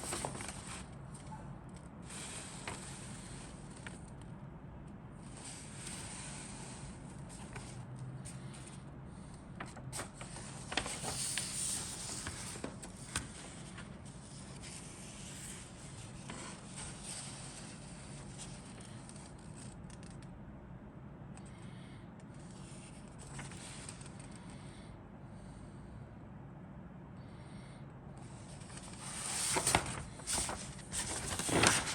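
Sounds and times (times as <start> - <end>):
plastic bags rustling: 0.0 - 1.0, 9.6 - 14.8, 28.8 - 31.9.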